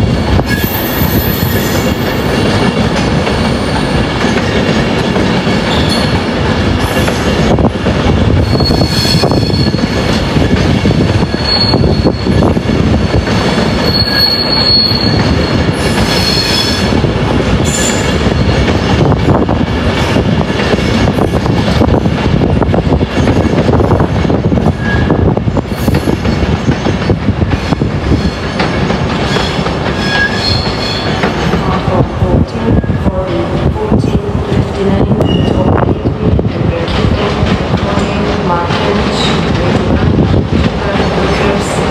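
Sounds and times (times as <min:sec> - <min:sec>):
train wheels squealing: 0:08.4 - 0:10.0, 0:11.2 - 0:12.4, 0:13.8 - 0:16.8, 0:29.3 - 0:31.2.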